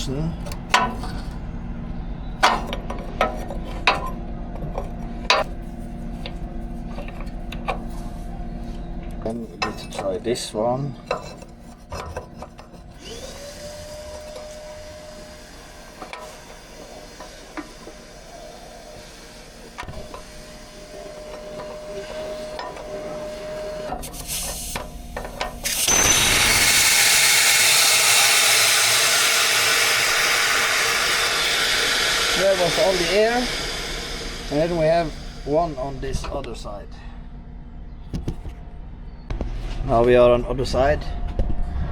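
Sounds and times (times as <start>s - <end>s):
power tool motor whining: 11.4s - 36.4s
loud rushing hiss: 13.0s - 24.8s, 25.6s - 36.3s.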